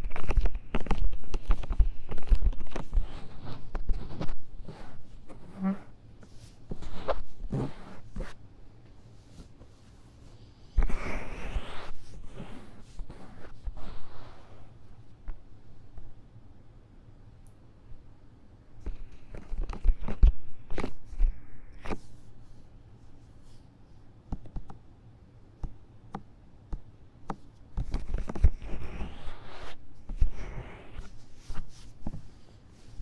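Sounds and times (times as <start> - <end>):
ear-cleaning tool scratching microphone: 0.2 - 6.0, 6.7 - 8.4, 10.8 - 14.8, 28.3 - 31.7.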